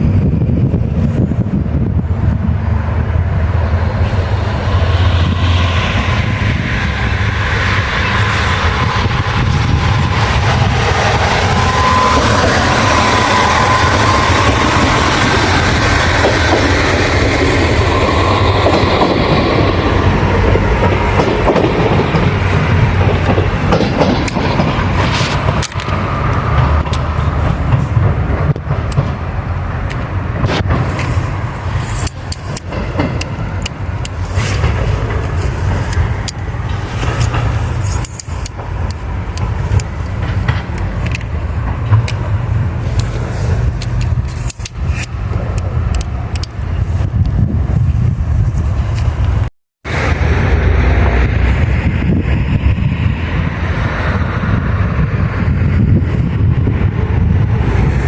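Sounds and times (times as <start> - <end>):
train wheels rumbling on rail: 0.0 - 58.0
clicks over rail joints: 7.6 - 47.4.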